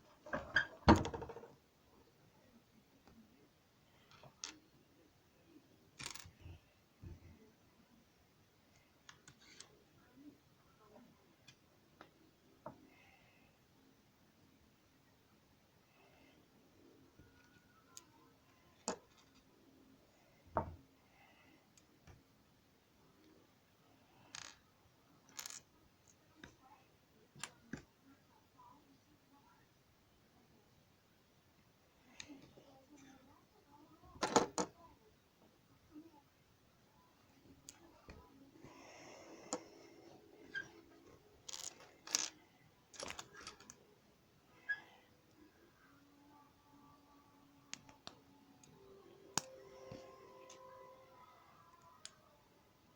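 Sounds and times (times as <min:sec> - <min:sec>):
plastic toy bricks clicking: 0:41.4 - 0:43.8.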